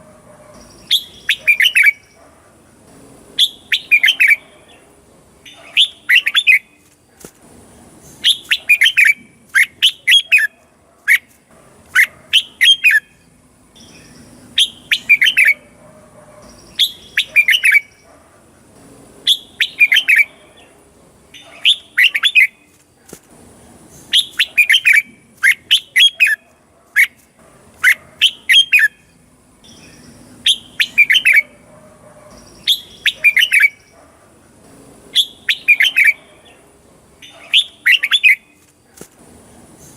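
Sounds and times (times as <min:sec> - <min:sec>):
bulbul whistled song: 0:00.6 - 0:02.2, 0:03.4 - 0:04.5, 0:05.5 - 0:06.8, 0:08.2 - 0:11.3, 0:12.0 - 0:15.7, 0:16.4 - 0:18.0, 0:19.3 - 0:20.4, 0:21.4 - 0:22.8, 0:24.1 - 0:26.4, 0:27.8 - 0:31.6, 0:32.4 - 0:34.0, 0:35.1 - 0:36.2, 0:37.2 - 0:38.6.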